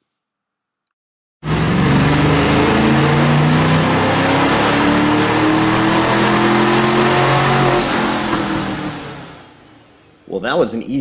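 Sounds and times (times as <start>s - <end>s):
engine revving under load: 1.4s - 10.0s.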